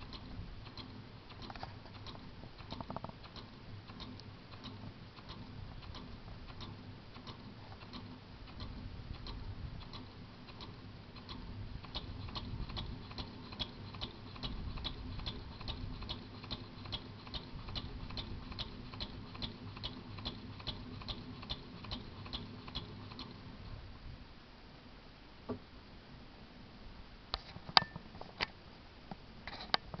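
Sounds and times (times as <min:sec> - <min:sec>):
sharp clicks: 0:00.0 - 0:23.4
small gas engine ticking: 0:00.0 - 0:23.5.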